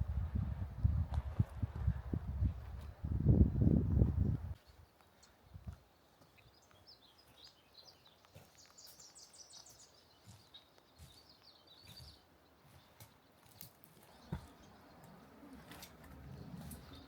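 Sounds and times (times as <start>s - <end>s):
faint bird chirping: 4.5s - 17.0s.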